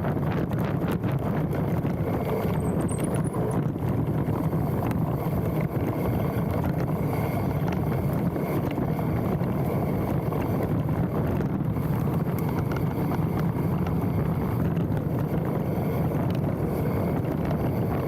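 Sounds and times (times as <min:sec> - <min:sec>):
bike tyres rumbling on dirt: 0:00.0 - 0:18.0
wind buffeting microphone: 0:00.0 - 0:18.0
disc brakes squealing: 0:02.4 - 0:03.7.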